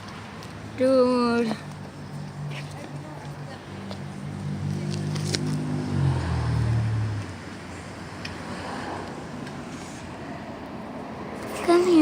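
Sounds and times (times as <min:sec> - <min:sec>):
car passing by: 0:03.7 - 0:12.0.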